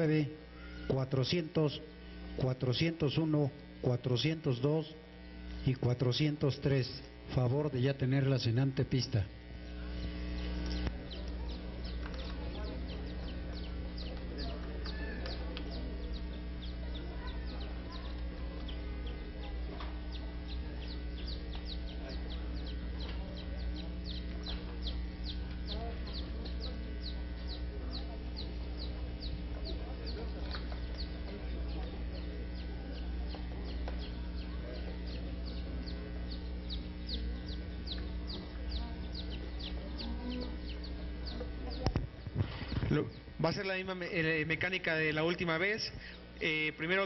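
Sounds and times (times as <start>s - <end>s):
low electrical hum: 0.0s - 47.0s
bird chirping rapidly: 10.7s - 19.2s, 20.1s - 30.2s, 30.8s - 41.8s.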